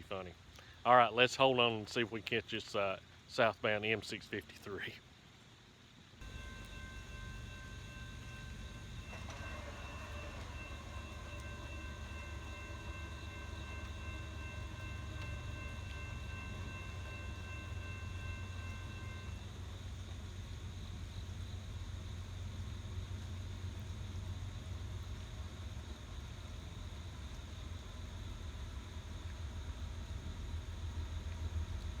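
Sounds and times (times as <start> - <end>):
steady high tones: 6.2 - 19.4
freight train rumbling: 6.2 - 26.0.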